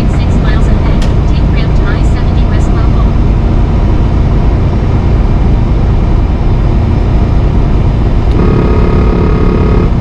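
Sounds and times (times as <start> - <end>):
truck cab rumble: 0.0 - 10.0
electronic warning tone: 8.3 - 10.0.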